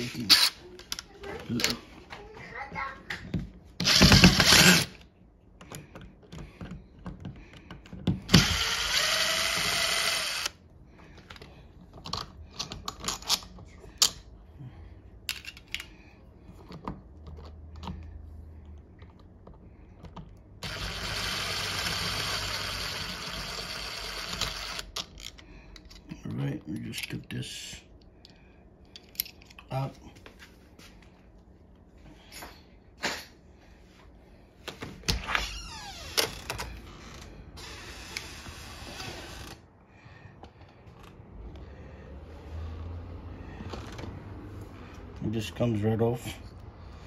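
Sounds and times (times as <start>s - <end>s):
power driver running: 3.8s - 5.0s, 8.3s - 10.6s, 20.6s - 24.9s.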